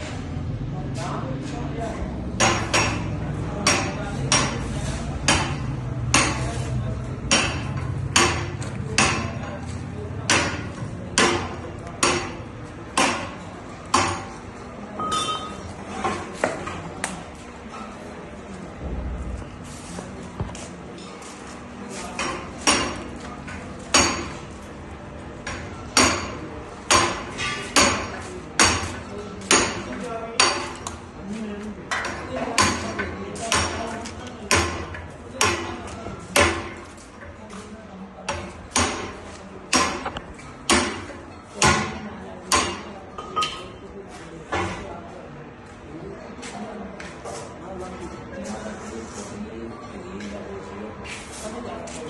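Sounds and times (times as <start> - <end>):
sharp metallic clanks: 15.0 - 15.7.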